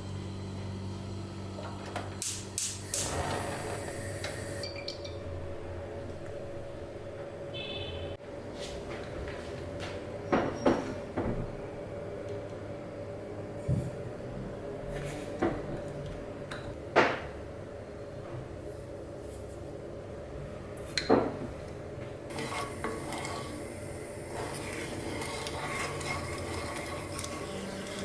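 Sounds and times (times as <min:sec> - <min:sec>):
kitchenware clatter and scraping: 0:24.3 - 0:28.0.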